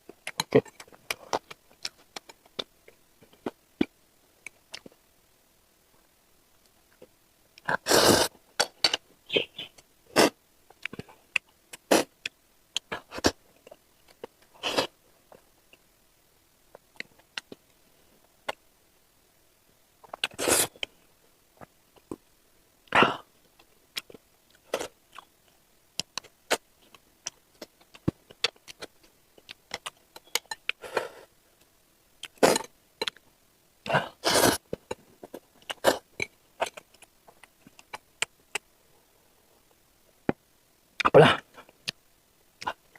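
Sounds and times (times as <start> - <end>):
slurping noodles: 7.8 - 8.3, 34.2 - 34.6.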